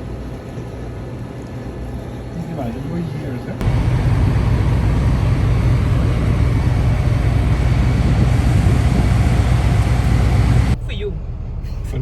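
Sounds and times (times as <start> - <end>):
vehicle rumble with road noise: 3.6 - 12.0.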